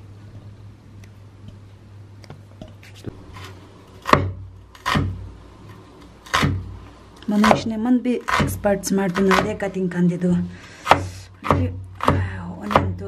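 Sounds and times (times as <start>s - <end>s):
low steady hum: 0.0s - 13.0s
knife chopping on cutting board: 3.1s - 5.2s, 6.2s - 6.7s, 7.4s - 9.6s, 10.8s - 13.0s.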